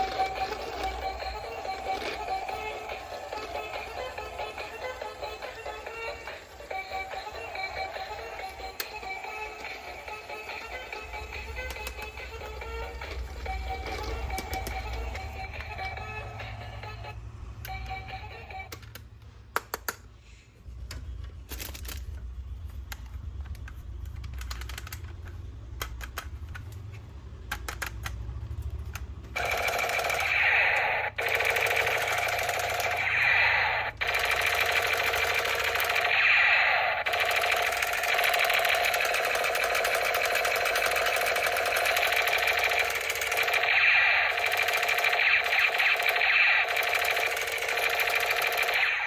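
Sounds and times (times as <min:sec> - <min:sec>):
plastic toy parts clicking: 0:00.0 - 0:16.6, 0:18.6 - 0:20.1, 0:20.8 - 0:30.3, 0:37.0 - 0:49.0
toy gun electronic firing sound: 0:00.0 - 0:18.8, 0:29.4 - 0:49.0.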